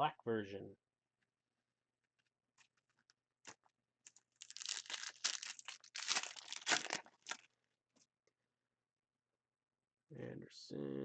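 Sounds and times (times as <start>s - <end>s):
wrapper tearing and crinkling: 4.0s - 7.5s.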